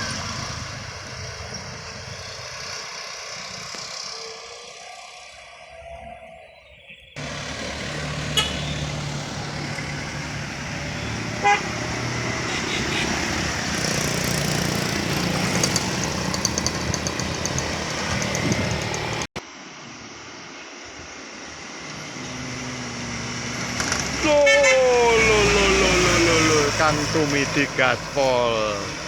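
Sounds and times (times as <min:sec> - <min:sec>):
trucks under full throttle: 0:00.0 - 0:05.7, 0:07.2 - 0:19.4, 0:21.6 - 0:29.0
horn toots: 0:08.2 - 0:08.9, 0:11.0 - 0:13.5, 0:24.2 - 0:29.0.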